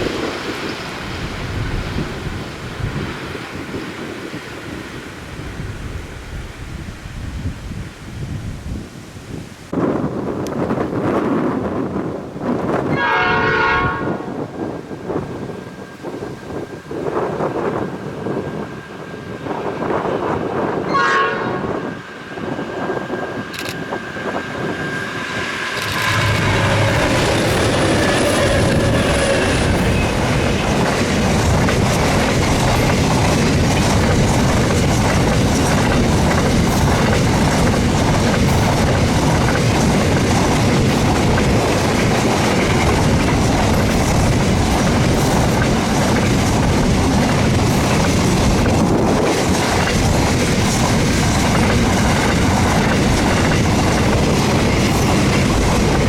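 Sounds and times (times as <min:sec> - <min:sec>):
train rumble and wheel clatter: 0:00.0 - 0:56.0
train horn: 0:12.9 - 0:14.5, 0:20.8 - 0:22.0, 0:25.8 - 0:30.2.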